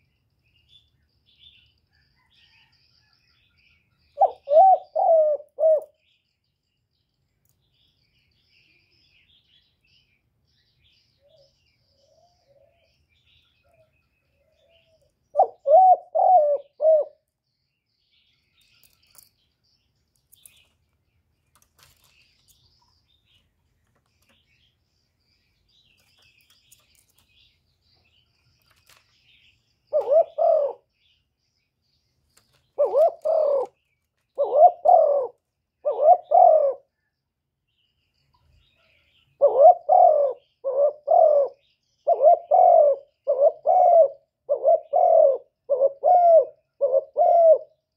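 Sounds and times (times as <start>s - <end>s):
dove cooing: 4.1s - 6.0s, 13.6s - 17.2s, 29.9s - 30.9s, 32.8s - 36.9s, 39.4s - 47.8s.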